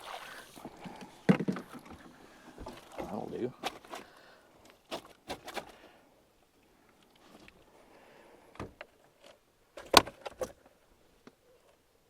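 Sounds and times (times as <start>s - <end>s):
fishing gear knocking and rattling: 0.6s - 4.0s.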